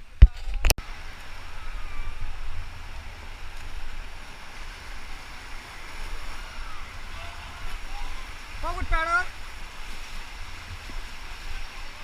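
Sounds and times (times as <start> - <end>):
wind on microphone: 0.0 - 12.0
river water rushing: 0.8 - 12.0.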